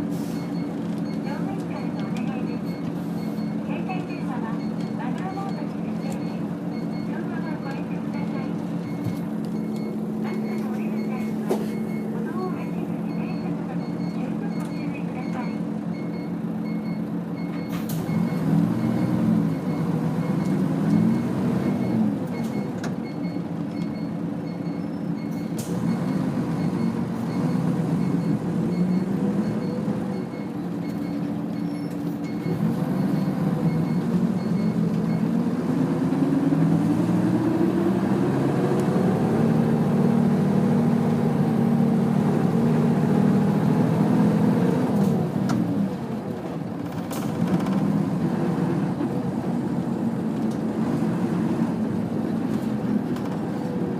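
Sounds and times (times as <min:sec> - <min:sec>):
bus diesel engine accelerating: 0:00.0 - 0:53.9
faint regular beeping: 0:00.4 - 0:20.5.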